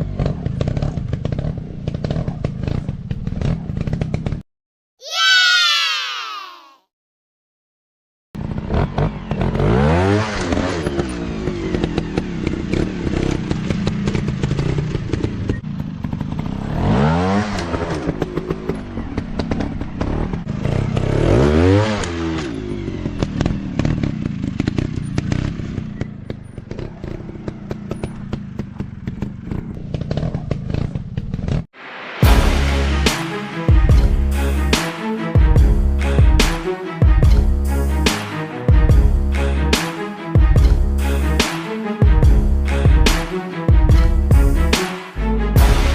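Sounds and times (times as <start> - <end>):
dirt bike engine revving: 8.4 - 31.0.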